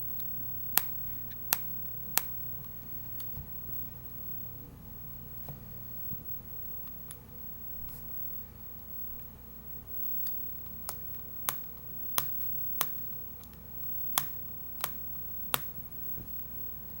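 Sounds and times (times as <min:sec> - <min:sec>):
tablet screen clicking: 0:00.1 - 0:04.4, 0:10.0 - 0:16.6.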